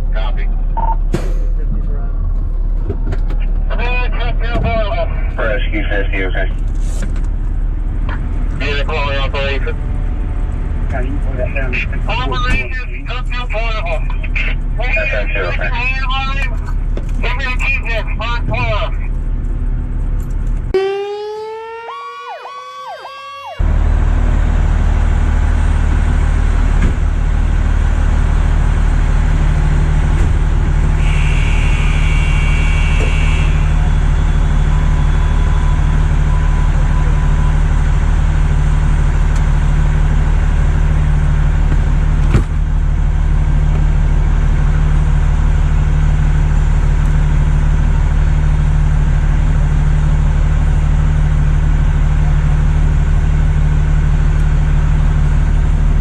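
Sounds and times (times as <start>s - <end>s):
fire truck diesel engine running: 0.0s - 56.0s
siren rising in pitch: 20.7s - 23.9s, 32.2s - 38.1s.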